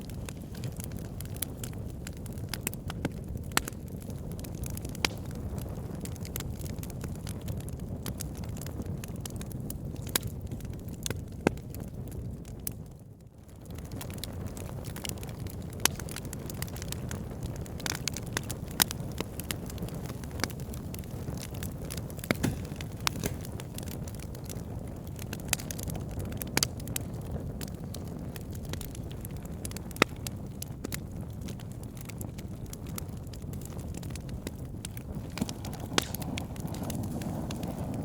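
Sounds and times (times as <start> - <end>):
logs crackling and popping: 0.0 - 38.0
fire flames rushing: 13.7 - 38.0.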